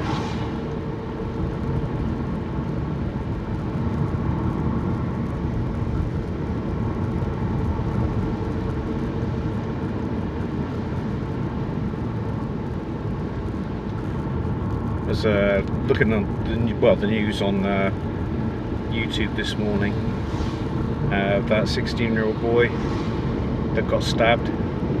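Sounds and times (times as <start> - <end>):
car engine and tyre hum: 0.0 - 25.0.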